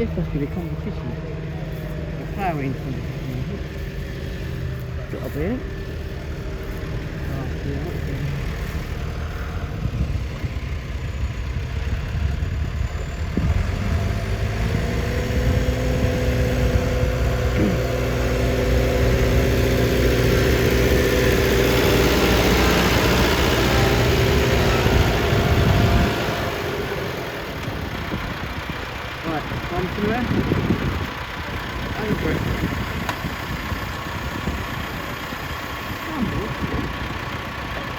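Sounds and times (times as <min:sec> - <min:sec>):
tractor engine running: 0:00.0 - 0:37.9.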